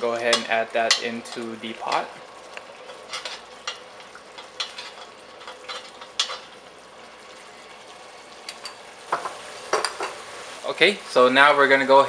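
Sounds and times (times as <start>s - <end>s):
curry paste sizzling in pot: 0.0s - 11.7s
spoon scraping and tapping pot: 2.9s - 6.5s.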